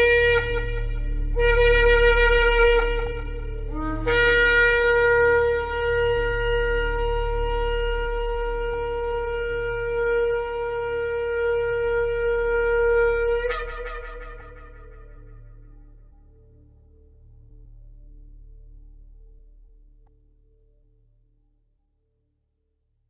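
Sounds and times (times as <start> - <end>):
shofar blasts: 0.0 - 15.9
steady low hum: 0.0 - 20.9.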